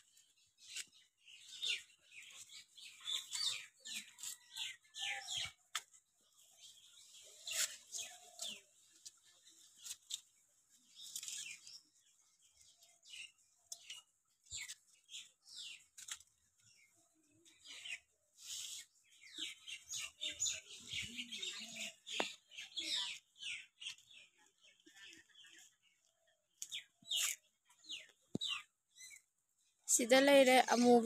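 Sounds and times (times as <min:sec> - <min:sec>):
birds chirping: 0:06.2 - 0:31.0.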